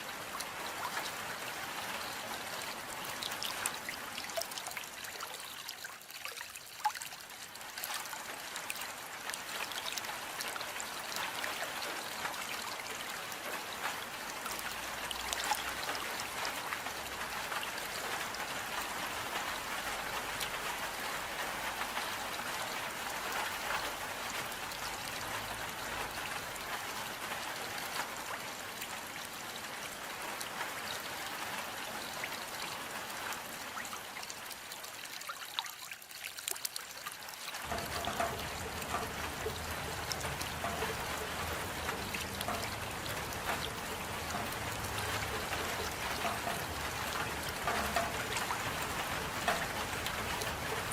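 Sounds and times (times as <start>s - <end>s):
raindrops pattering: 0.0s - 50.9s
steady rain: 0.0s - 50.9s
water trickling: 0.0s - 50.9s.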